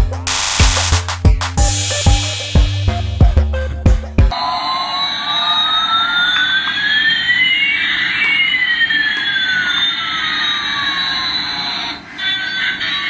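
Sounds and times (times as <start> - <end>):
electronic jet engine effect: 0.3 - 2.6.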